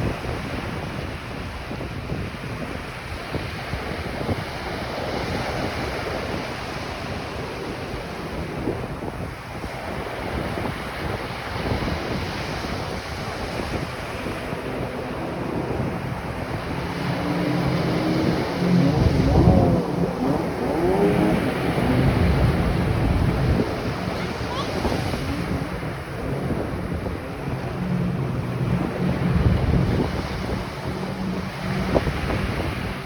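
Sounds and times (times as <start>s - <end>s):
surf washing on a beach: 0.0s - 33.0s
wind buffeting microphone: 0.0s - 33.0s
engine hum: 9.6s - 33.0s.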